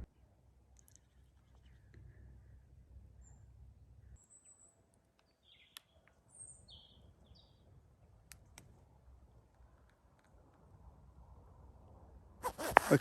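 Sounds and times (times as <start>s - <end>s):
faint birds chirping: 0.0s - 8.3s.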